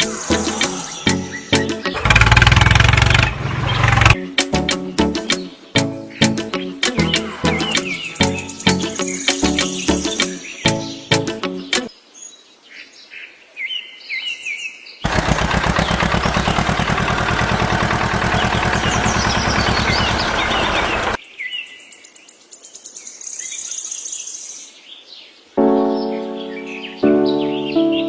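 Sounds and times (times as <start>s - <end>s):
birds chirping: 0.0s - 2.2s, 3.3s - 11.9s, 15.0s - 22.2s, 25.2s - 28.0s
fast mechanical rattle: 2.0s - 4.2s, 15.1s - 21.2s.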